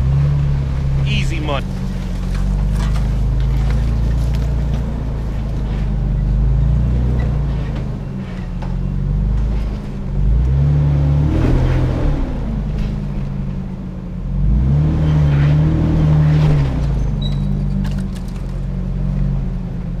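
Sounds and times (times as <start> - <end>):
truck engine running: 0.0 - 14.6.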